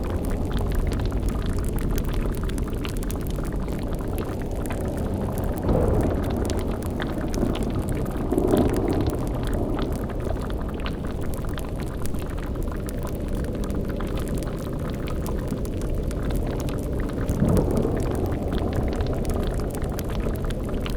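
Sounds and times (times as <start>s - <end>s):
liquid bubbling at the boil: 0.0s - 20.9s
low rumble: 0.0s - 20.9s.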